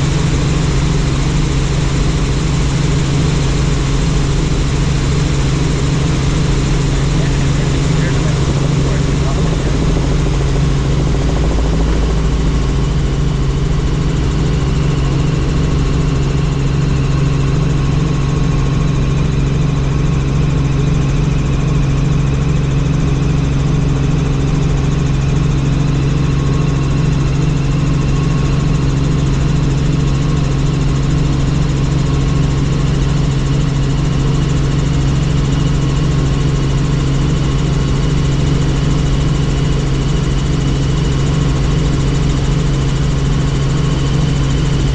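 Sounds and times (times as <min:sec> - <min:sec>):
helicopter engine and rotor drone: 0:00.0 - 0:44.9
faint high whine: 0:06.2 - 0:14.7.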